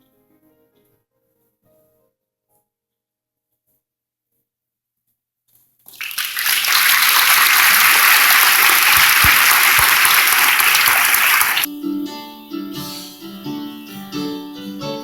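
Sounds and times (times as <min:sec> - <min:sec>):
audience applauding: 0:06.0 - 0:11.7.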